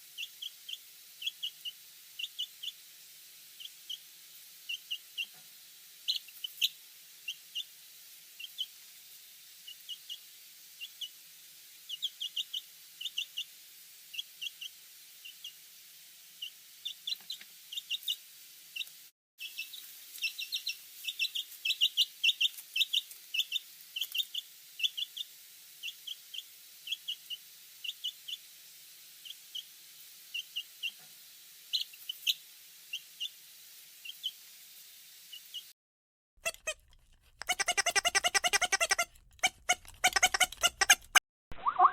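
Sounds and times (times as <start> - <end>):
baby chicks peeping: 1.2 - 2.7, 11.9 - 13.4, 18.8 - 25.2, 36.4 - 41.2.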